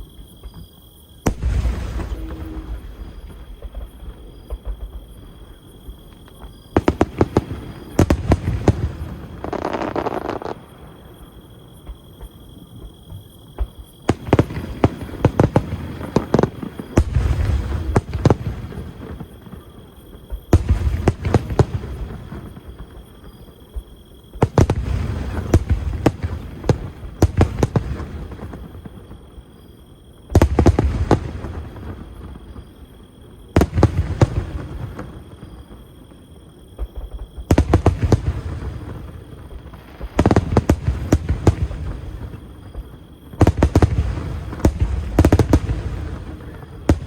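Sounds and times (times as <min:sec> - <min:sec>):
firework crackling and popping: 0:06.1 - 0:11.1
firework shells bursting: 0:06.8 - 0:10.7.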